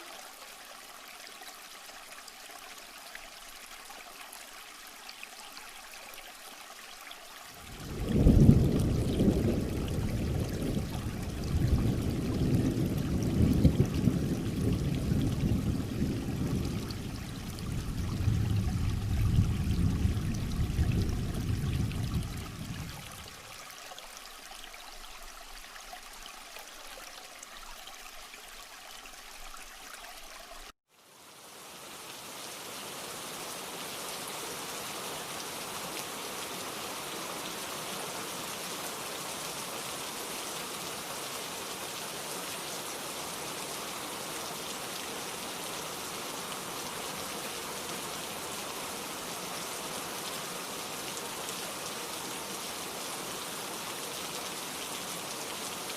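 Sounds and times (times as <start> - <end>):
rain falling: 7.5 - 25.7, 30.5 - 55.9.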